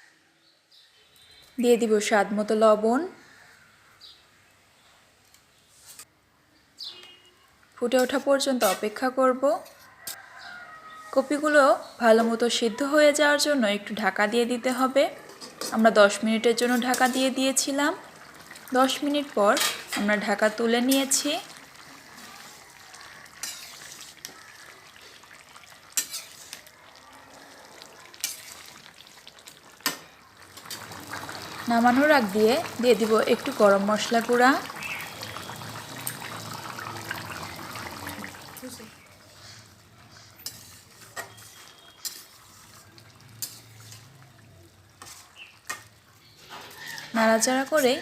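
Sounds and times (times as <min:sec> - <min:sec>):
curry sizzling in a pan: 0:14.2 - 0:48.0.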